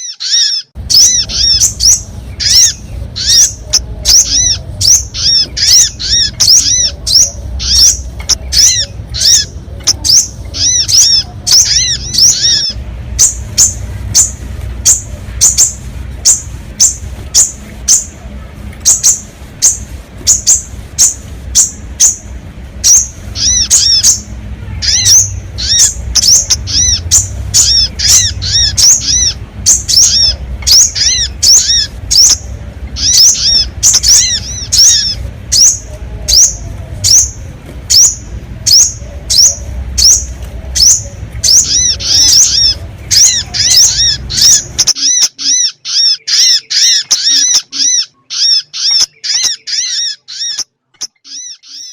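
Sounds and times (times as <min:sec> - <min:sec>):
sharp high bird chirps: 0:00.0 - 0:18.2, 0:18.8 - 0:51.9
low steady hum: 0:00.2 - 0:50.4.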